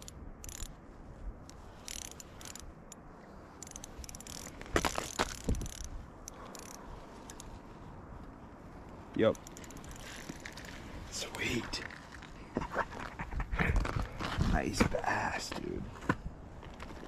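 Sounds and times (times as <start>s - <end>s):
fishing reel clicking: 0.0s - 0.7s, 1.5s - 3.0s, 3.6s - 4.5s, 5.3s - 5.9s, 6.5s - 7.4s, 9.3s - 10.1s.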